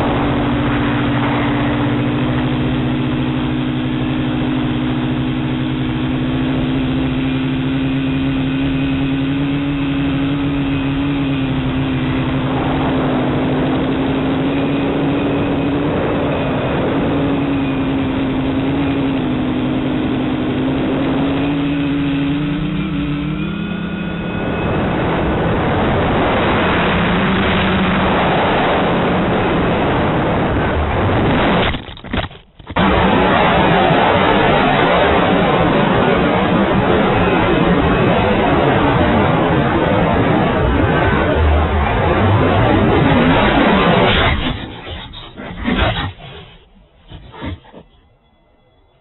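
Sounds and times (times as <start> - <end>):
rough rushing noise: 0.0 - 48.2
drone motors buzzing: 32.7 - 49.0.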